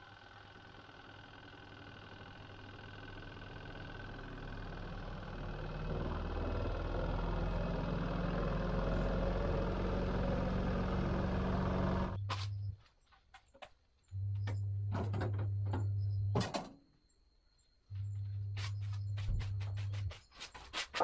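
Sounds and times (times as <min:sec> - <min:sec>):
washing machine motor hum: 0:00.0 - 0:12.3.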